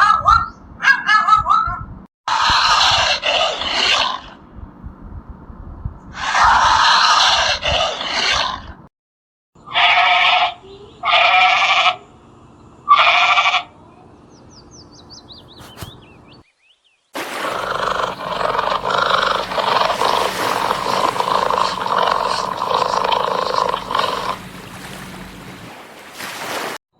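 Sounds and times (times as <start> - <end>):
steady noisy sound: 17.2 - 25.7.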